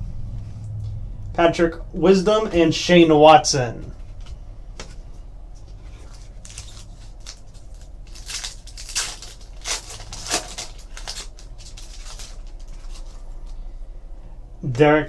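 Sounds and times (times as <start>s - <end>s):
low room hum: 0.0s - 15.0s
card wrappers crinkling: 5.7s - 13.6s.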